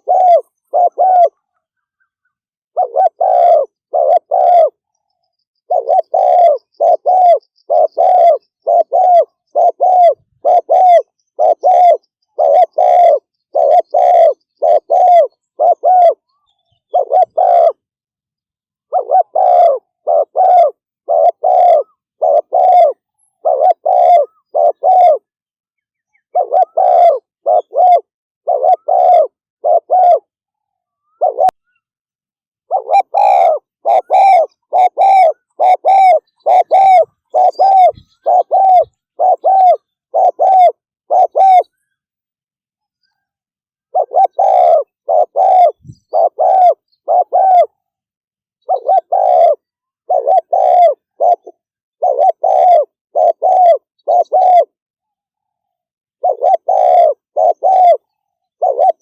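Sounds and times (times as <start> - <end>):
dove cooing rapidly: 0.0 - 1.7, 2.7 - 4.9, 5.6 - 17.9, 18.8 - 25.3, 26.1 - 30.3, 30.9 - 31.8, 32.7 - 42.0, 43.9 - 47.9, 48.6 - 54.8, 56.2 - 59.0.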